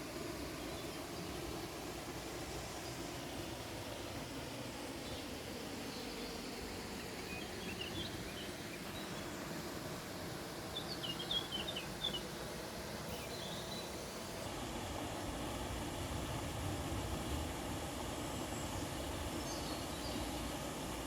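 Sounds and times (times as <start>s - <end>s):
small birds chirping: 7.1s - 9.4s, 10.7s - 12.3s, 13.1s - 14.2s.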